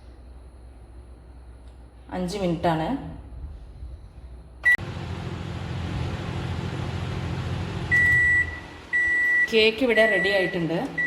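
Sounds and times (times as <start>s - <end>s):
microwave oven humming: 4.6s - 11.0s
microwave short beep: 7.8s - 11.0s.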